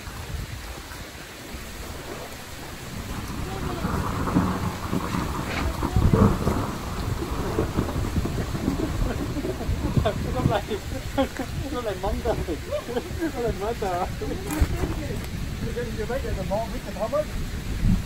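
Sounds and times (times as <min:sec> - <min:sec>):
wind buffeting microphone: 0:00.0 - 0:18.0
rustling: 0:10.7 - 0:15.4.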